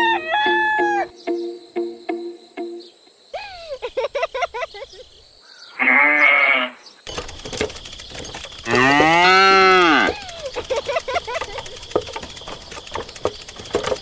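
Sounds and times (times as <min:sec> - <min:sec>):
animal bleat: 0:05.7 - 0:07.0
quick chirping: 0:07.0 - 0:14.0
cow mooing: 0:08.6 - 0:10.2.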